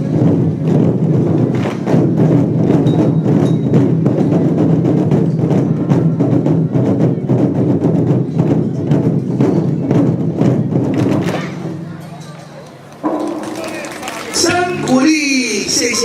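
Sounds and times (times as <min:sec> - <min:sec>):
cymbals: 0:00.0 - 0:16.0
drum beats: 0:00.0 - 0:16.0.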